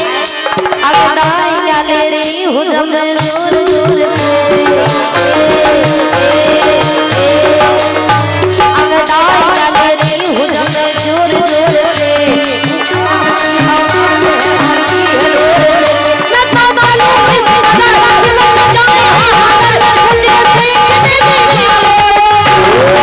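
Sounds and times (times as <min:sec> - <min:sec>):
hand drum beat: 0:00.0 - 0:02.5, 0:03.1 - 0:23.0
jingling percussion: 0:00.0 - 0:23.0
wavering melody: 0:11.2 - 0:23.0.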